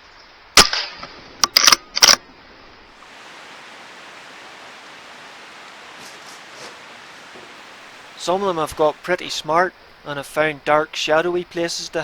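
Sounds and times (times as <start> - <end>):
rifle bolt clicking and clattering: 1.4 - 2.2
steady hiss: 2.9 - 12.0.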